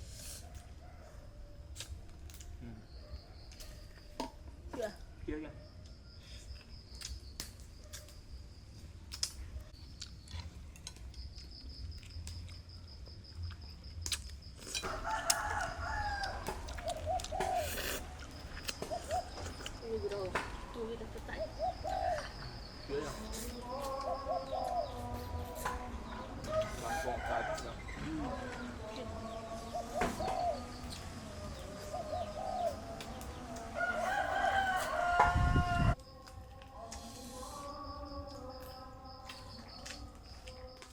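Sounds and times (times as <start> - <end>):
rooster crowing: 0.4 - 1.8, 14.8 - 17.7, 23.6 - 36.0.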